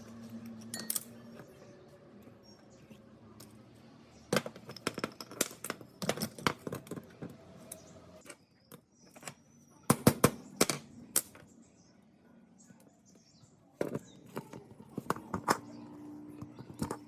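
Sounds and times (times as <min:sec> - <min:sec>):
small metal parts and tools clicking: 0:00.0 - 0:02.6, 0:03.4 - 0:11.5, 0:13.8 - 0:17.0.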